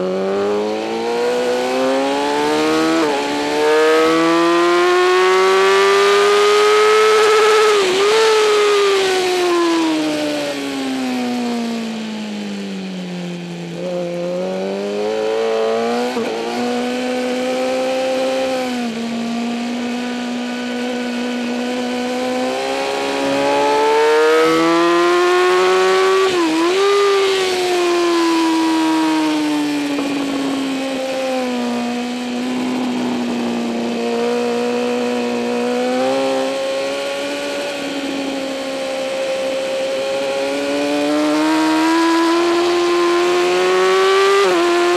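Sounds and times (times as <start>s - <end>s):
motorcycle engine revving: 0.0s - 44.9s
wind noise: 14.8s - 44.9s.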